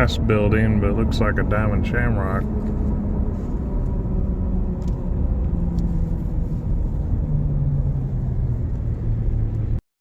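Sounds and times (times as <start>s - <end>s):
road rumble: 0.0s - 9.8s
vehicle engine: 0.0s - 9.8s.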